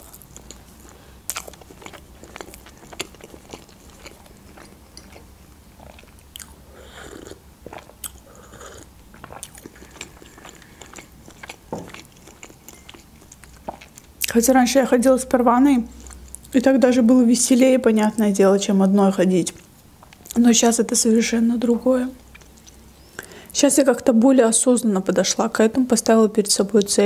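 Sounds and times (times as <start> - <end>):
person chewing: 0.0 - 14.3.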